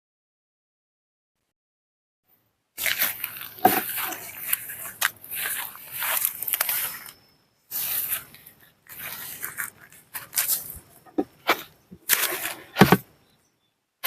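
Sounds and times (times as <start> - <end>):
rustling handling noise: 2.8 - 13.2.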